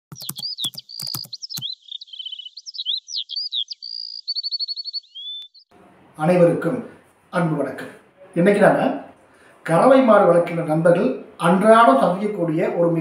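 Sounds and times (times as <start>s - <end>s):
sharp clicks: 0.1s - 1.7s
bird rattling trills: 0.1s - 5.6s
bird chirps and whistles: 0.1s - 5.7s.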